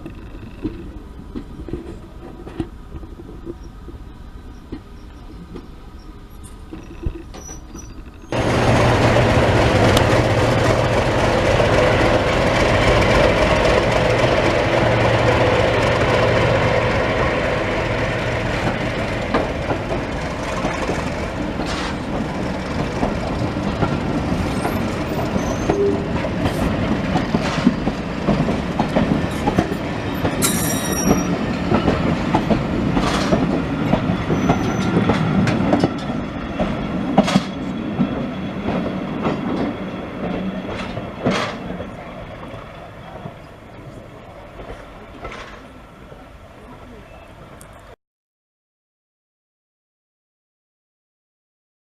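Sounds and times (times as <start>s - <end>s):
train wheels clicking over rail joints: 0.0s - 45.8s
wheel squeal: 4.5s - 8.4s, 24.4s - 26.2s, 30.1s - 31.4s, 34.2s - 35.0s.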